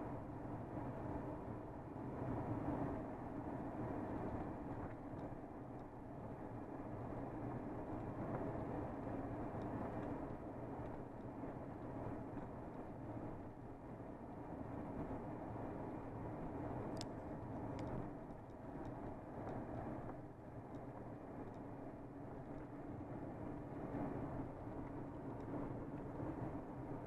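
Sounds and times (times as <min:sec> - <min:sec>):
road noise: 0:02.2 - 0:27.0.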